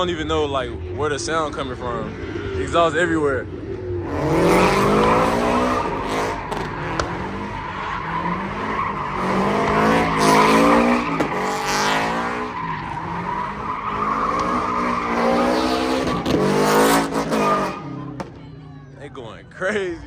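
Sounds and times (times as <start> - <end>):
car engines revving: 0.0 - 20.0
tyres squealing: 4.2 - 18.3.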